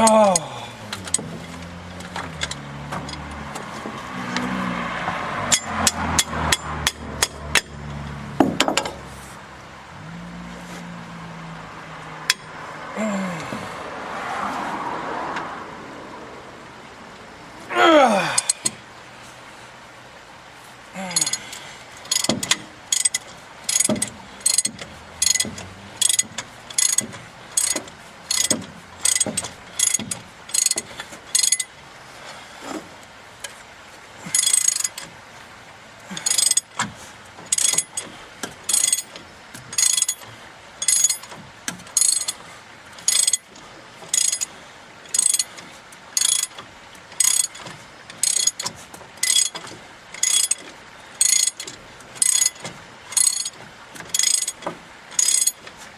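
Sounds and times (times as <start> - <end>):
ratchet wrench clicking: 5.4 - 8.0, 21.2 - 21.4, 22.0 - 31.7, 34.4 - 35.1, 36.1 - 36.8, 37.5 - 38.1, 38.7 - 40.2, 40.8 - 41.4, 42.0 - 42.4, 43.1 - 43.5, 44.1 - 44.5, 45.1 - 45.6, 46.2 - 46.6, 47.2 - 49.6, 50.2 - 52.6, 53.2 - 55.6.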